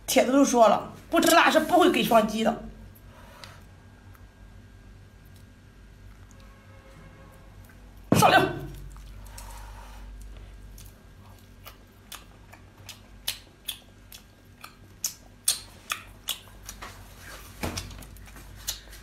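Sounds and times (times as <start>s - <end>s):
wet chewing clicks and smacks: 10.2s - 17.0s, 17.8s - 19.0s.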